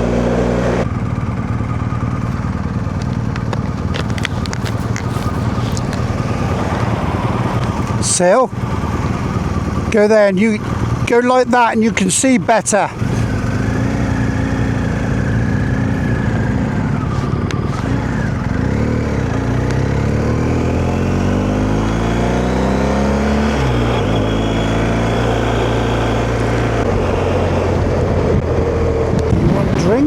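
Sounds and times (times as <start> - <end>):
motorcycle engine: 0.0 - 30.0
wind and road noise: 0.0 - 30.0.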